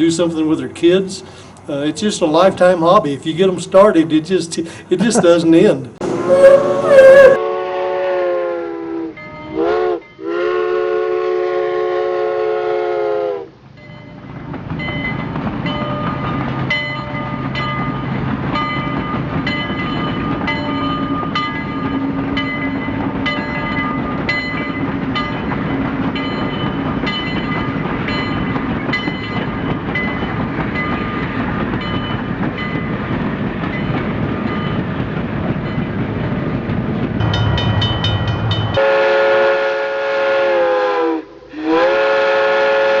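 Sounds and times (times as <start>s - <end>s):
model train whistle: 6.0s - 13.5s, 38.8s - 43.0s.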